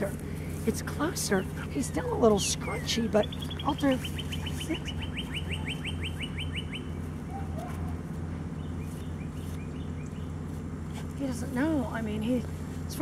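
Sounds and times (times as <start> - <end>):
steady low hum: 0.0 - 13.0
faint bird chirps: 1.2 - 8.0
bird singing whistled notes: 2.4 - 7.0.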